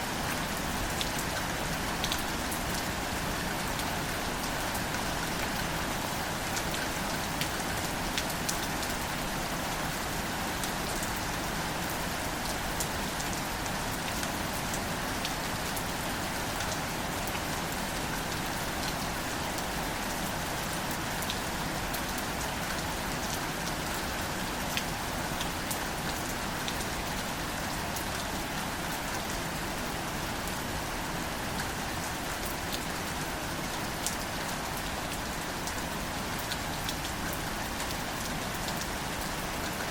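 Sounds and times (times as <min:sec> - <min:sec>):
gentle rain on leaves: 0:00.0 - 0:39.9.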